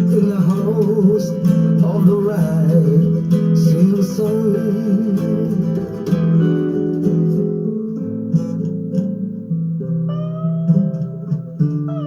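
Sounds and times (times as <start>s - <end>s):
guitar picked chords: 0.0s - 12.0s
held guitar melody note: 0.0s - 12.0s.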